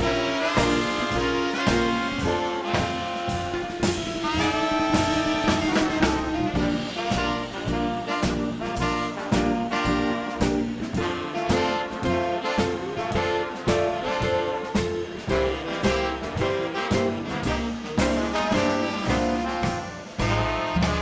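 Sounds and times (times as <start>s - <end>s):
long held horn note: 0.0s - 10.4s
swing band instrumental: 0.0s - 21.0s.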